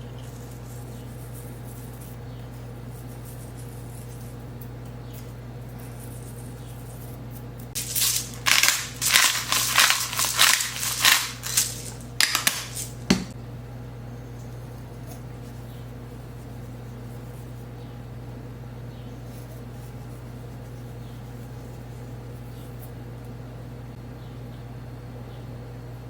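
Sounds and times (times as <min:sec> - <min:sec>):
crinkling scraping handling noises: 0:00.0 - 0:13.4
steady low hum: 0:00.0 - 0:26.0.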